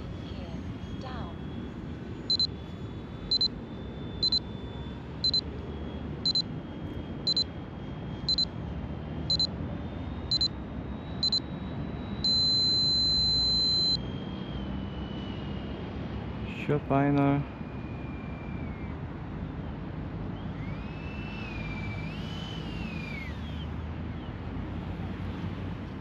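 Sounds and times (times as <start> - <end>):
faint high jet motor whine: 0.0 - 26.0
electronic alarm beeping: 2.3 - 5.5, 6.2 - 6.5, 7.2 - 7.5, 8.2 - 8.6, 9.3 - 9.5, 10.2 - 14.6.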